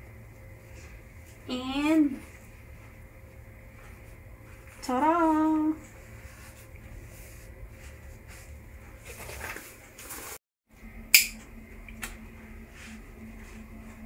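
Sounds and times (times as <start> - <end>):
sharp click: 11.1 - 11.4.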